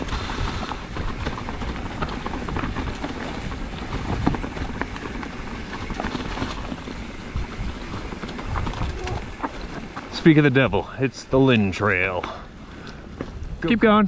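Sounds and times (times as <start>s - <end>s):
wind on microphone: 0.0s - 10.1s
bike knocks and rattles: 0.0s - 10.5s
bike tyres on dirt trail: 0.0s - 14.0s.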